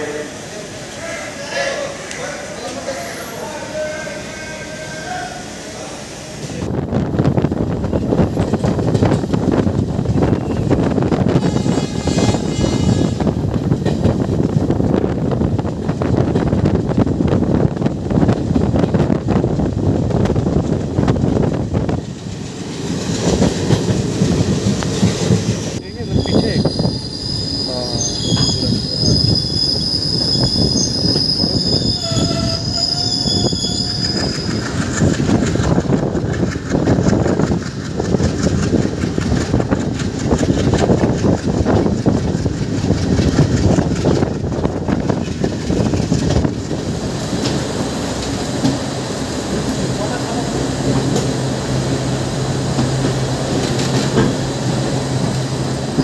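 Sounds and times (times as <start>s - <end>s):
train wheels rumbling on rails: 0.0s - 56.0s
wheels clickety-clack: 7.7s - 12.4s, 13.5s - 25.5s, 34.1s - 48.8s, 52.7s - 54.5s
high wheel squeal: 11.3s - 13.3s, 25.8s - 34.9s.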